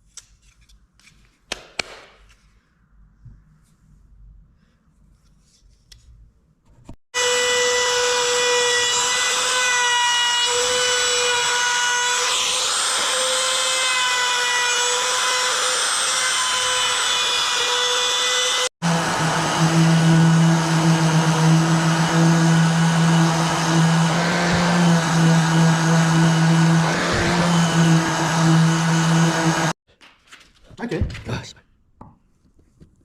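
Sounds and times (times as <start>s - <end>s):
power tool whining: 7.2s - 29.8s.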